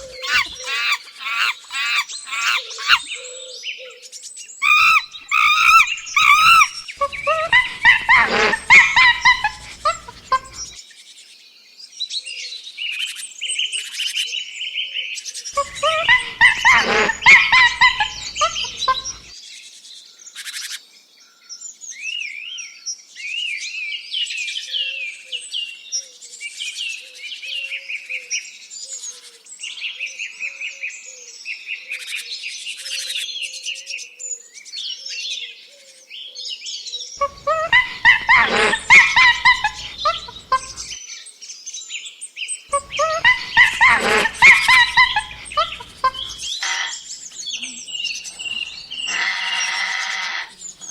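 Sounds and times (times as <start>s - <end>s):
loud harsh animal call: 0.0s - 3.1s, 4.6s - 10.8s, 15.6s - 19.3s, 37.2s - 41.0s, 42.7s - 47.0s, 48.3s - 50.6s
birds chirping and singing: 0.0s - 3.2s, 4.6s - 10.8s, 15.6s - 19.3s, 37.2s - 41.0s, 42.7s - 49.9s.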